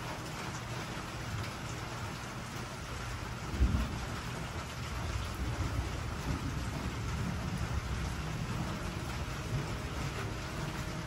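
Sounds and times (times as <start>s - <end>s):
rain on wooden deck: 0.0s - 11.0s
thunder rumble: 3.4s - 11.0s.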